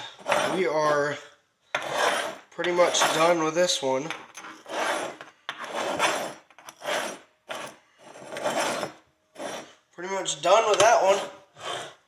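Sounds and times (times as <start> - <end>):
horseshoe being scrubbed: 0.0 - 1.1, 1.8 - 3.5, 4.5 - 9.8.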